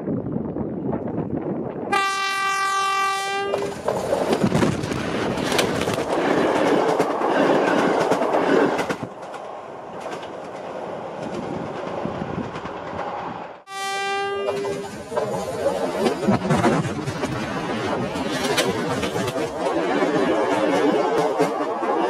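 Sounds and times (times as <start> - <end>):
train rumbling and clattering: 0.0 - 13.7, 14.3 - 22.0
locomotive horn: 1.9 - 3.8, 13.7 - 14.9.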